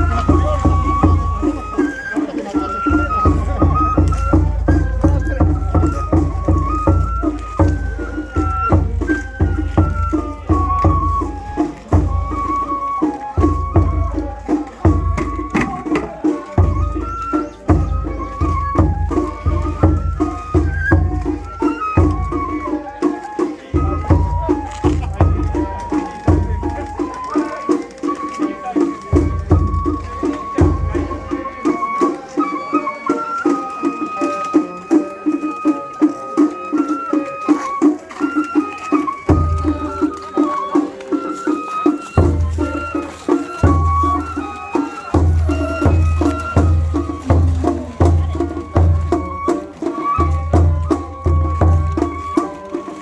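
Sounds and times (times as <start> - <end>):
deep drum beats: 0.0 - 27.2, 28.9 - 31.5, 38.9 - 40.2, 41.8 - 53.0
bamboo flute long notes: 0.0 - 53.0.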